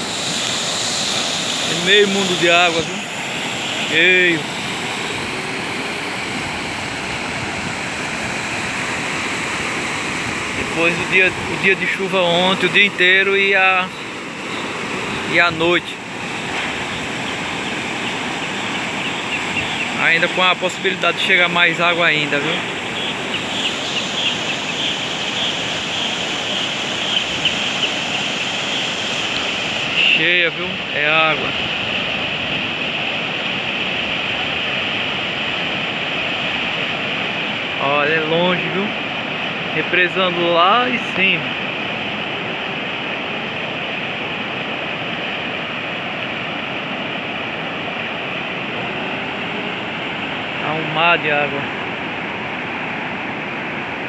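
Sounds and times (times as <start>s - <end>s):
river water rushing: 0.0s - 54.0s
faint high chirps: 21.5s - 30.2s.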